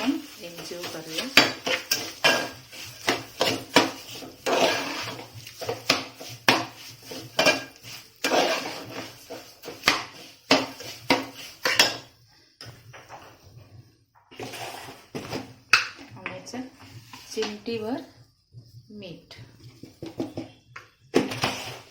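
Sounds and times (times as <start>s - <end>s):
spoon clinking and scraping pot: 0.0s - 12.1s.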